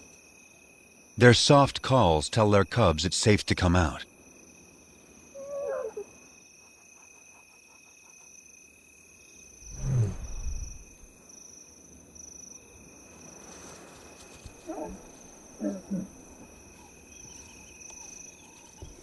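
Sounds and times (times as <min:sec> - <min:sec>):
crickets trilling: 0:03.8 - 0:19.0
lions calling softly: 0:05.4 - 0:06.1, 0:14.6 - 0:16.2.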